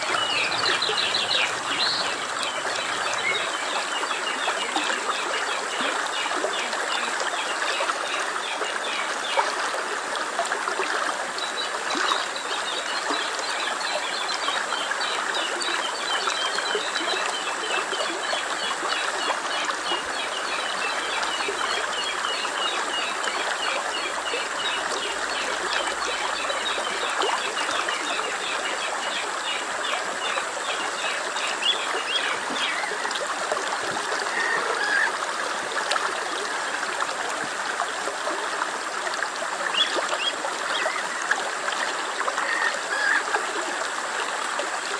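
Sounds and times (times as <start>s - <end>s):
small birds chirping: 0.0s - 4.4s
stream trickling over stones: 0.0s - 44.9s.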